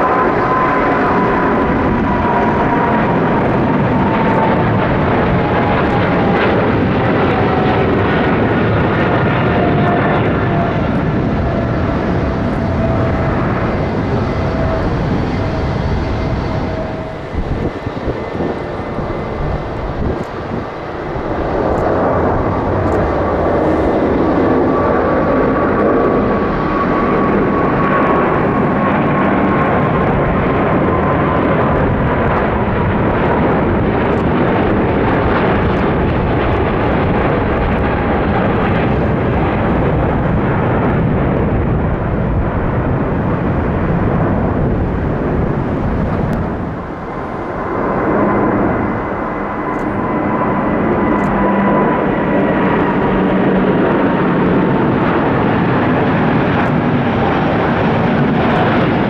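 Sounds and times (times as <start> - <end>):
jet engines roaring: 0.0 - 59.0
jet fan whine: 0.0 - 59.0.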